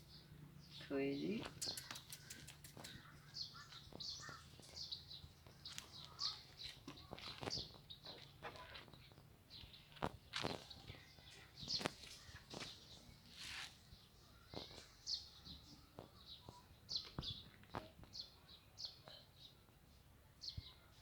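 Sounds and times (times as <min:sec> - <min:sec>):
small birds chirping: 0:00.0 - 0:21.0
sharp clicks: 0:01.4 - 0:03.1.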